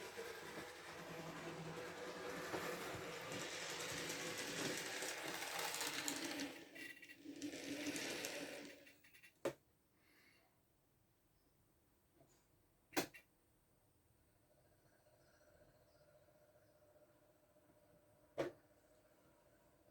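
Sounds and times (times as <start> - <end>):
model train motor whirring: 0.0 - 9.3
wheels rattling over rails: 0.0 - 9.3.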